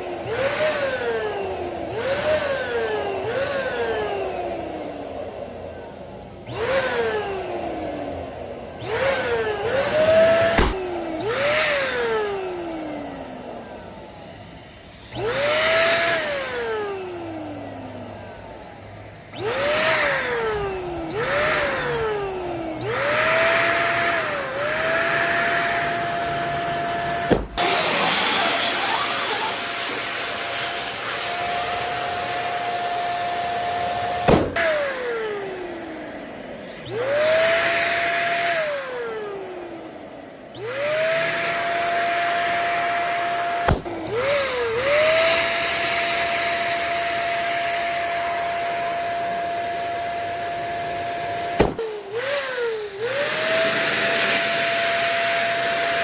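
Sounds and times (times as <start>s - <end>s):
electric balloon pump whirring: 0.0s - 56.0s
balloons popping: 10.1s - 10.9s, 27.2s - 28.0s, 34.2s - 34.8s, 43.6s - 44.4s, 51.5s - 51.9s.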